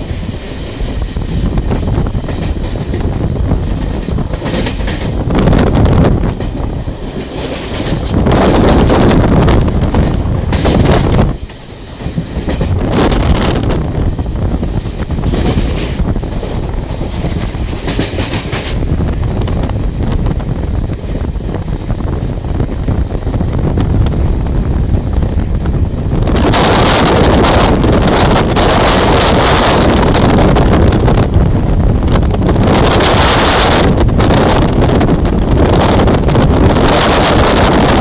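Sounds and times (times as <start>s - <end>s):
train rumbling past: 0.0s - 38.0s
wheels clacking over rail joints: 1.7s - 5.3s, 6.2s - 12.9s, 14.6s - 19.4s.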